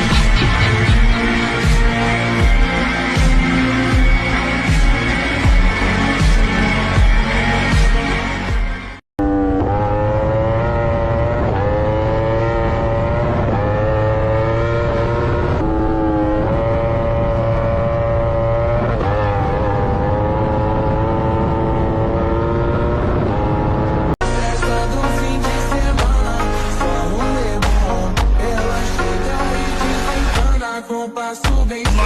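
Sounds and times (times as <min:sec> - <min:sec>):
engine accelerating through gears: 0:09.2 - 0:24.2.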